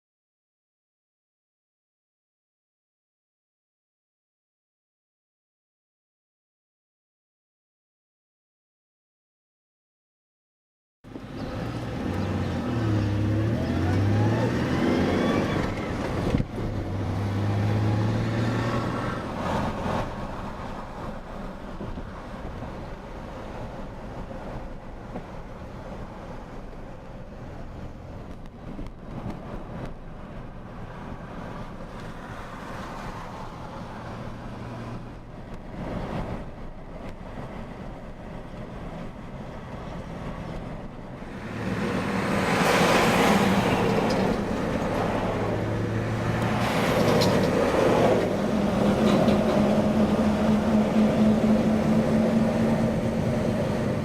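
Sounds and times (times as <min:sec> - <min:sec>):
vehicle engine hum: 0:11.1 - 0:54.0.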